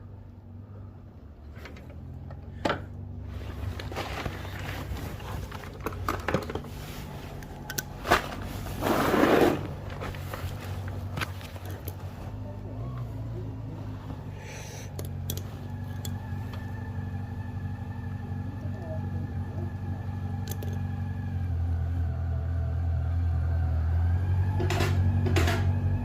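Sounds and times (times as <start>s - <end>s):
low hum: 0.0s - 26.0s
scraping rustle: 3.2s - 12.4s
metal parts clicking and scraping: 9.9s - 12.1s, 14.5s - 16.2s, 20.4s - 20.8s.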